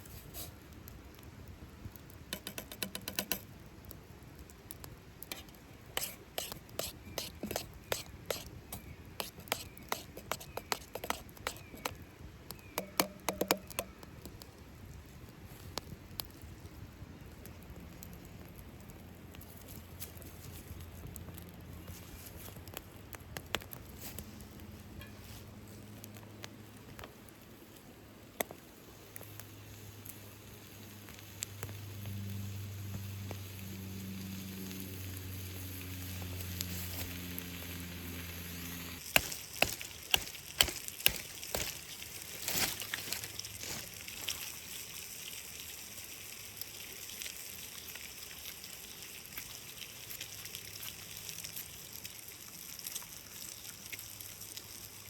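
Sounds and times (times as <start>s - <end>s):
sharp knocks and crackles: 2.3s - 3.5s, 6.4s - 14.4s, 39.1s - 43.8s
food sizzling in skillet: 29.5s - 43.9s.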